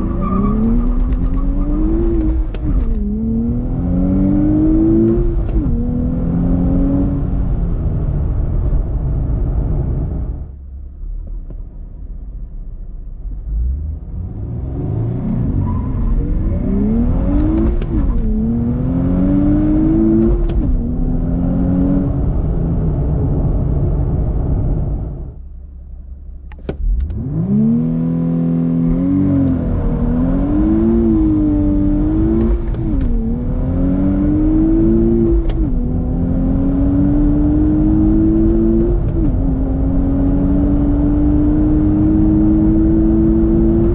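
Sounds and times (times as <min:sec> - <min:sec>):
car engine accelerating hard: 0:00.0 - 0:10.4, 0:13.4 - 0:25.3, 0:26.5 - 0:43.9.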